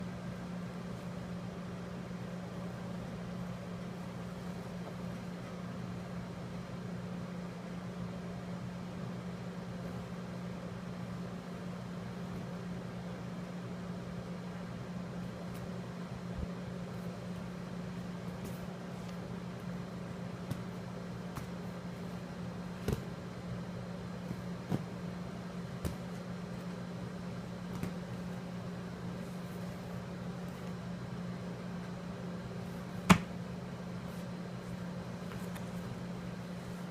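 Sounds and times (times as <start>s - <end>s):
low mechanical hum: 0.0s - 36.9s.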